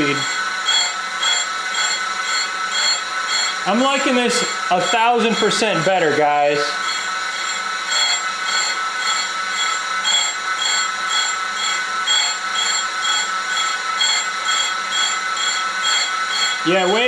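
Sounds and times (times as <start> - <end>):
grinding wheel squealing: 0.0 - 17.0.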